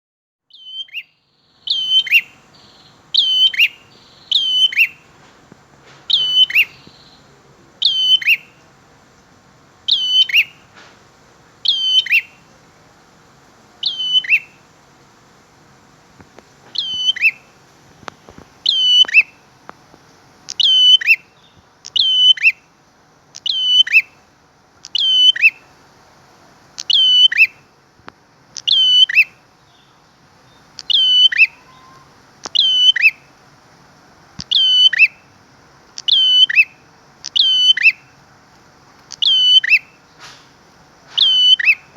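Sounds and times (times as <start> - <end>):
bird call high then falling note: 0.6 - 5.0, 11.6 - 12.3, 13.8 - 14.5, 16.8 - 17.4, 30.9 - 33.2, 34.5 - 35.2, 36.1 - 36.7, 37.4 - 38.0, 39.2 - 39.9, 41.2 - 41.9.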